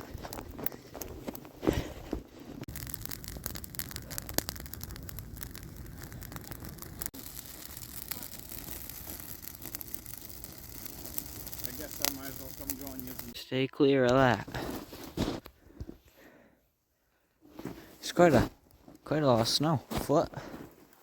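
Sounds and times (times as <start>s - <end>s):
twigs crackling and snapping: 0.0s - 13.4s
steady low rumble: 2.6s - 13.4s.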